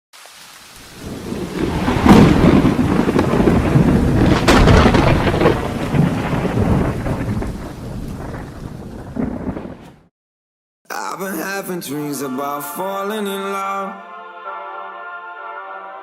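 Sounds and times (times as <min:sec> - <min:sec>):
rain: 0:00.1 - 0:10.1
thunder rumbling: 0:00.8 - 0:10.1
sharp thunder cracks: 0:00.9 - 0:10.1.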